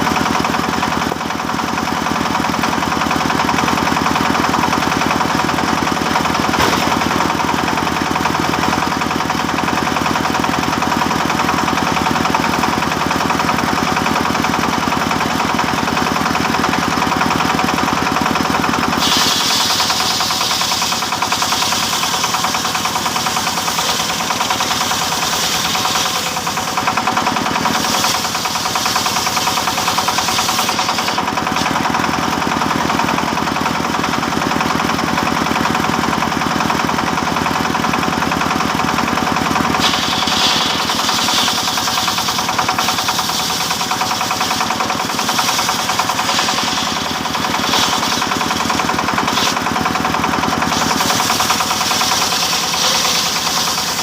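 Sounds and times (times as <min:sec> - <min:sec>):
engine-driven wood saw: 0:00.0 - 0:54.0.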